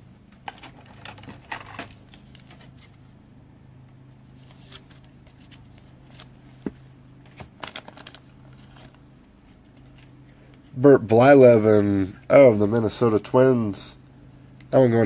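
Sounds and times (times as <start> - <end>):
steady low hum: 0.0 - 15.0
trading cards rustling and clicking: 0.4 - 3.1, 4.4 - 10.6.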